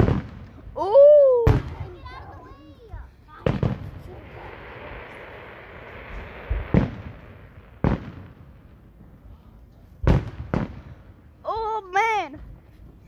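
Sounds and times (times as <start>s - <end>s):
firework bangs echoing: 0.0s - 0.8s, 1.4s - 9.3s, 10.0s - 11.2s
firework hiss: 1.5s - 11.1s.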